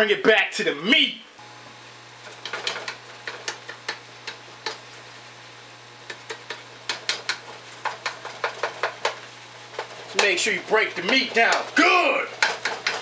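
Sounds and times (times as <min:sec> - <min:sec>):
utensil scraping a pan: 0:06.0 - 0:13.0.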